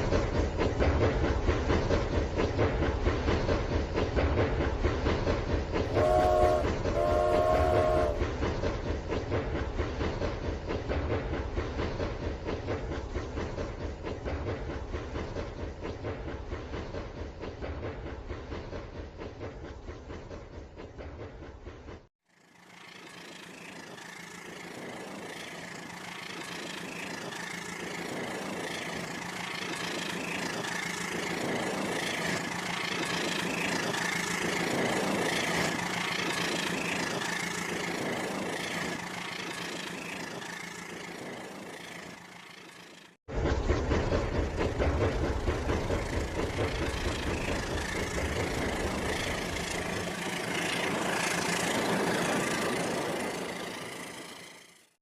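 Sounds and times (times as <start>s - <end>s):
train motor hum and whine: 5.8s - 8.8s, 22.4s - 54.9s.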